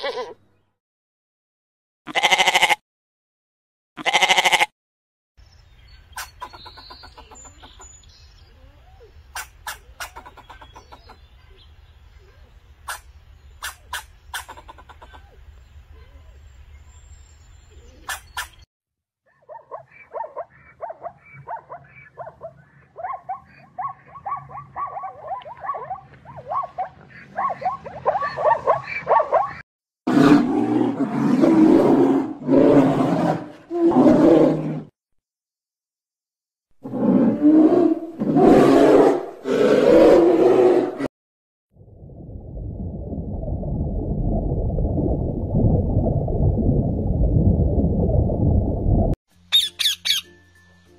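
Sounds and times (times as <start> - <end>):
low hum: 41.8 - 49.2.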